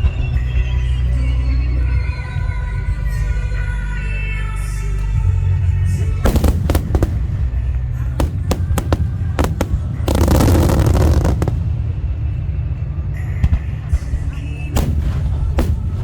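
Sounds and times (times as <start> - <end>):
faint background music: 0.0 - 16.0
fireworks bangs: 6.2 - 12.2, 14.7 - 16.0
fireworks booming: 6.2 - 12.5, 14.7 - 16.0
fireworks crackling: 6.3 - 12.1, 14.7 - 16.0.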